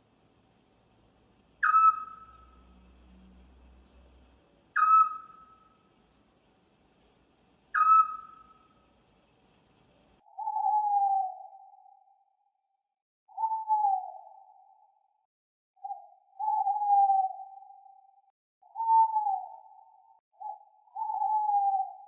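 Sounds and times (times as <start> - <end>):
owl calling: 1.6 - 3.0, 4.7 - 5.9, 7.7 - 8.9, 10.3 - 12.0, 13.3 - 14.8, 15.8 - 18.0, 18.6 - 22.0.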